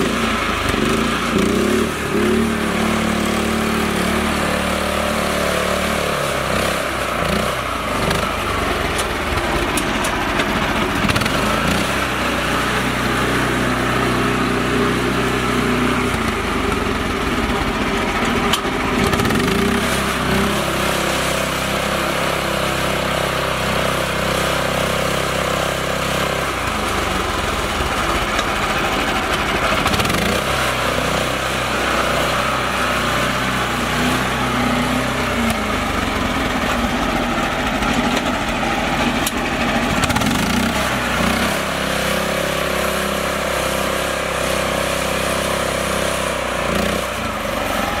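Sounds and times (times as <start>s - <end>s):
small tractor engine running: 0.0s - 48.0s.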